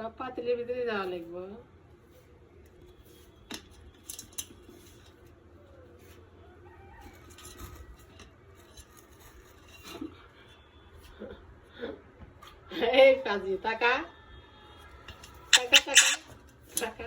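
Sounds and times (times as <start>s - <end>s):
parrot sharp clicks: 15.6s - 16.2s
parrot soft low calls: 15.6s - 16.2s.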